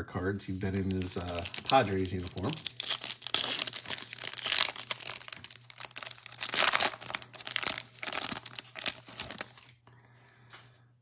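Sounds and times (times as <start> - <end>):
plastic sleeves crinkling: 0.5 - 9.9.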